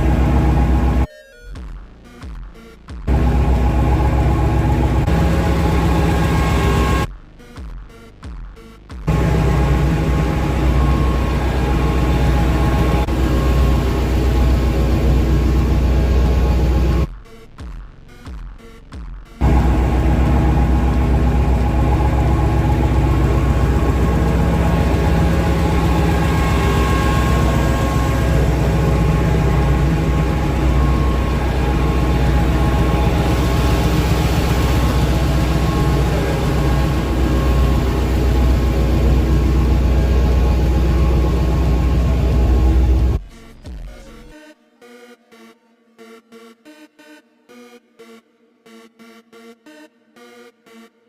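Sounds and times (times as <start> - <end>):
truck engine running: 0.0 - 1.1, 3.1 - 7.1, 9.1 - 17.1, 19.4 - 43.2.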